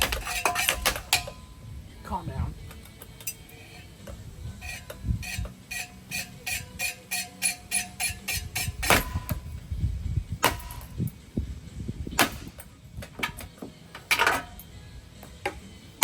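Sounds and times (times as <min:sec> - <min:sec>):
metallic bangs and clangs: 0:00.0 - 0:01.6, 0:02.9 - 0:09.6, 0:10.4 - 0:11.1, 0:12.2 - 0:14.6
low rumble: 0:09.0 - 0:12.3.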